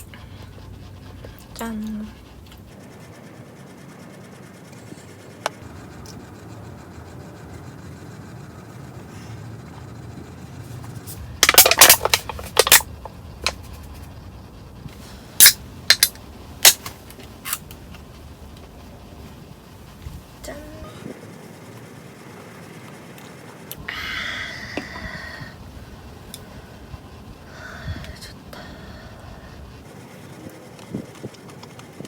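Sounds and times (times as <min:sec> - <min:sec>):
small hard objects clattering: 0:11.2 - 0:13.6.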